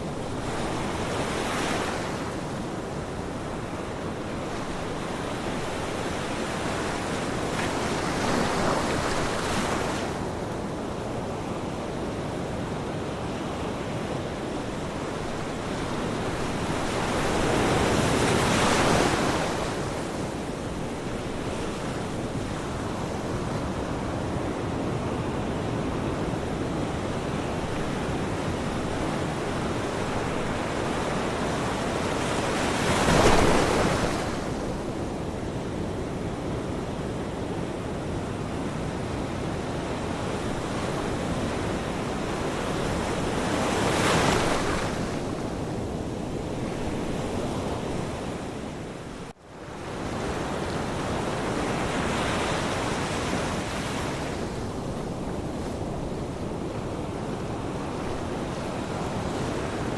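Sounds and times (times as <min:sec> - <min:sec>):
waves washing: 0:28.6 - 0:34.8
waves breaking: 0:29.7 - 0:34.8.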